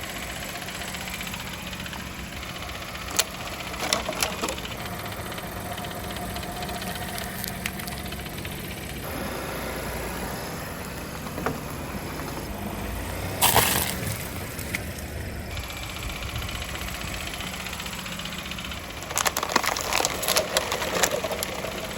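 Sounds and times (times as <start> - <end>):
car engine idling: 0.0 - 21.9
tyres crushing onions: 18.9 - 21.9.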